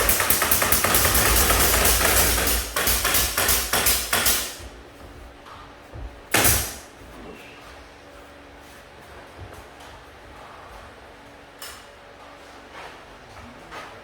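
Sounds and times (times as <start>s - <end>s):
rapid hammer strikes: 0.0s - 4.8s, 6.3s - 6.9s.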